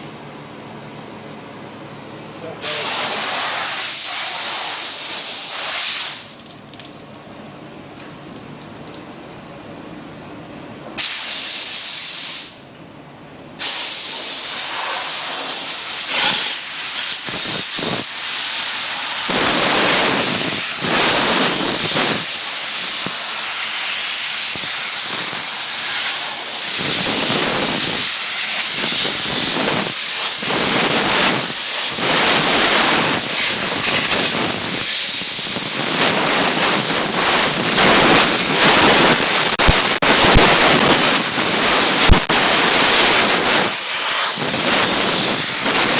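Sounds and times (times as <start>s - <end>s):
steam cleaner hissing: 2.6s - 6.3s, 13.6s - 45.9s.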